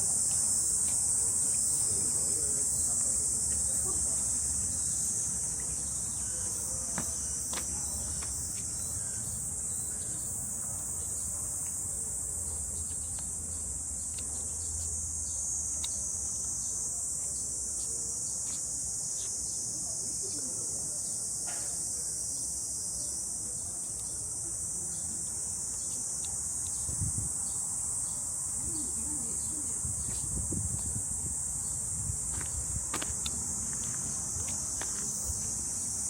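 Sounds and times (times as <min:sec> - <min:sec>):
cicadas buzzing: 0:00.0 - 0:36.0.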